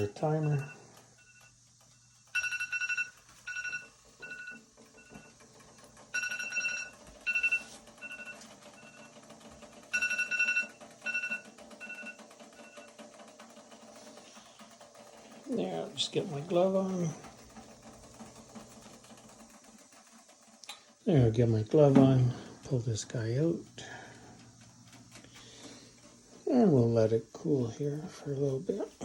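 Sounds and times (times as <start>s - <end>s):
digital timer beeping: 0.0s - 1.6s, 2.2s - 5.4s, 6.1s - 9.2s, 9.8s - 13.0s.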